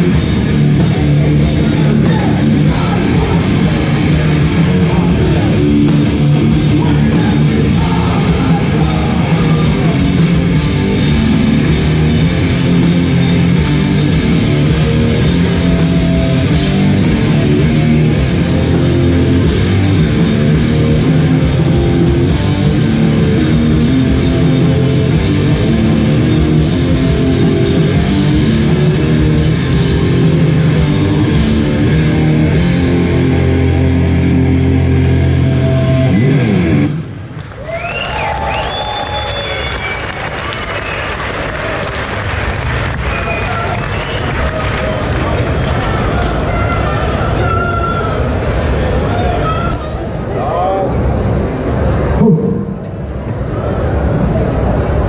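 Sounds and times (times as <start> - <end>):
hardcore band playing live: 0.0 - 37.4.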